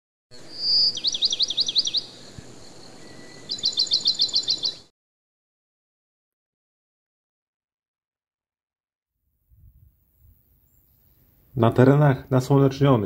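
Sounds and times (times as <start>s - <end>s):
songbird singing: 0.3s - 4.9s, 9.6s - 13.0s
faint background noise: 9.6s - 13.0s.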